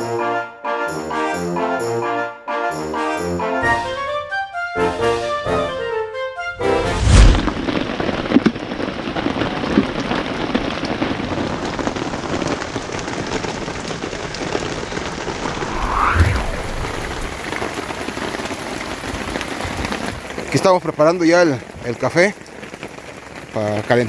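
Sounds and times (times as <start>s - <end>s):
rain on a tarp: 7.6s - 15.6s, 17.4s - 24.0s.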